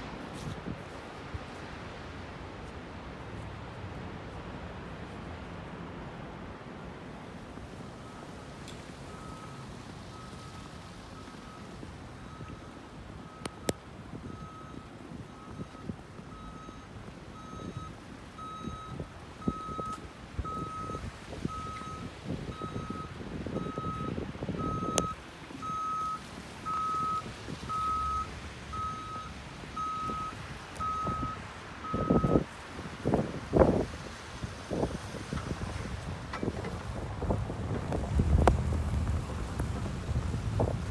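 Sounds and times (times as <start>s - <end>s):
reversing alarm beeping: 9.1s - 32.5s
low rumbling noise: 36.5s - 40.9s.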